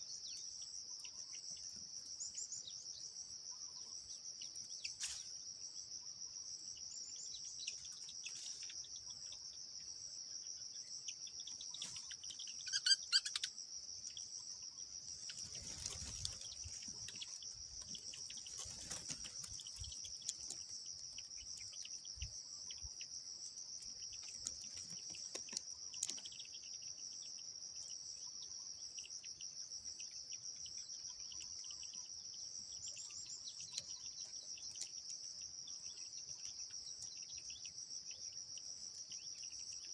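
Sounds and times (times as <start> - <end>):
insects droning: 0.0 - 39.9
bird chirps: 10.4 - 20.6.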